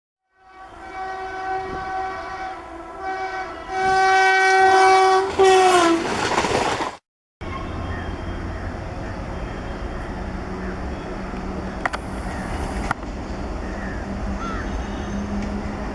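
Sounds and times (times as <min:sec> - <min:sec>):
locomotive horn blasts: 0:00.2 - 0:06.1, 0:13.9 - 0:15.9
train passing: 0:00.3 - 0:15.9
low rumble of train running: 0:00.4 - 0:06.8, 0:07.4 - 0:15.9.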